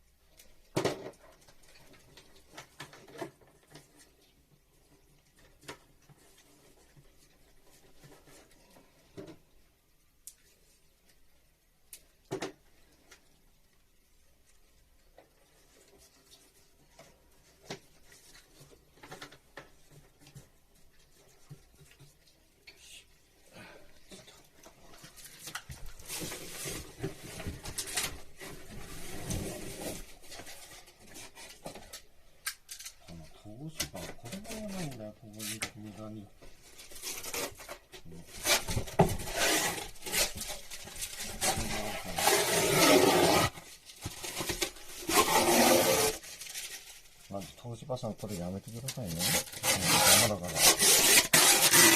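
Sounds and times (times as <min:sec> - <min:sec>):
scratchy rustles of handling: 0:14.4 - 0:23.4, 0:32.8 - 0:51.9.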